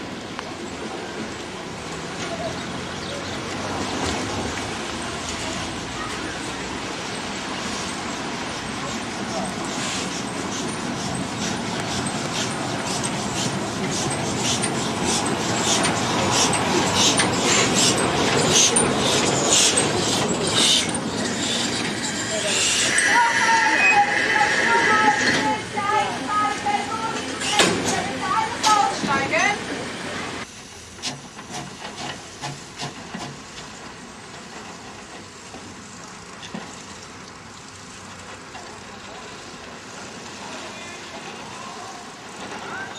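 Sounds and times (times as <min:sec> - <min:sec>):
steam locomotive chuffing: 0:03.4 - 0:36.8
steady rushing hiss: 0:04.2 - 0:42.8.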